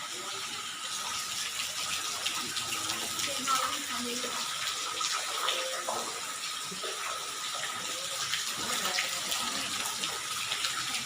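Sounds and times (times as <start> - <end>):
thin steady tone: 5.2 - 7.3.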